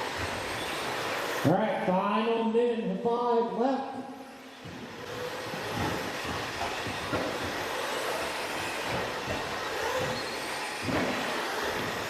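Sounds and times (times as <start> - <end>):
electric motor whine: 0.0 - 1.4, 4.4 - 12.0.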